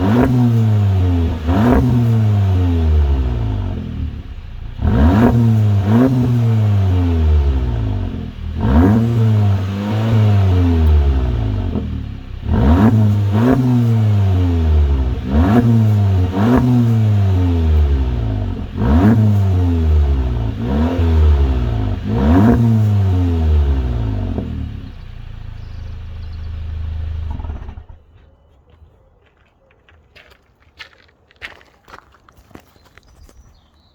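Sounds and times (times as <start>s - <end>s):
car engine idling: 0.0s - 28.0s
car engine revving: 0.0s - 28.0s.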